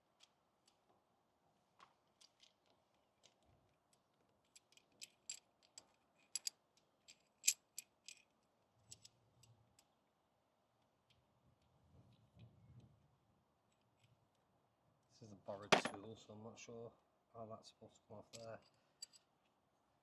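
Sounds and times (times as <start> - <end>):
faint metallic clicks and clinks: 1.8 - 10.0, 18.2 - 19.6.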